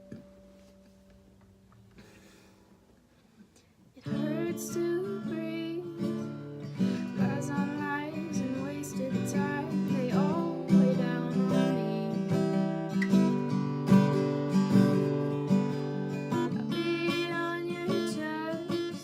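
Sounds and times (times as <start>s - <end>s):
acoustic guitar strumming chords: 4.0s - 19.0s.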